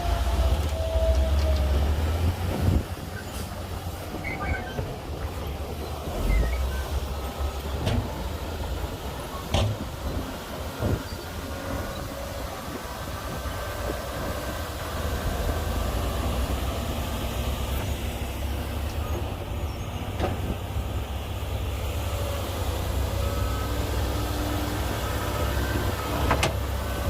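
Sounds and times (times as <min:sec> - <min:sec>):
squealing track whine: 0:00.0 - 0:20.4
bulldozer diesel engine: 0:00.0 - 0:27.0.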